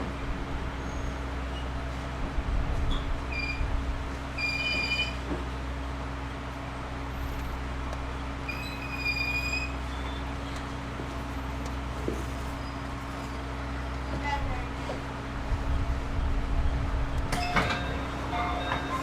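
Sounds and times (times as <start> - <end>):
train equipment hum: 0.0 - 19.0
high ringing tones: 17.3 - 19.0.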